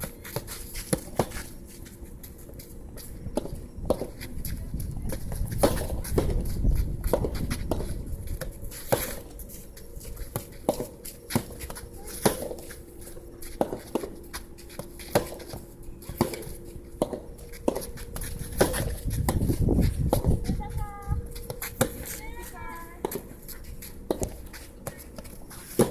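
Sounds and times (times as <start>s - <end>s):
wind on microphone: 3.8s - 8.7s, 18.2s - 21.4s
balls hitting racket strings: 10.3s - 12.8s, 13.4s - 20.3s, 23.0s - 25.9s
balls bouncing on court: 24.1s - 25.2s.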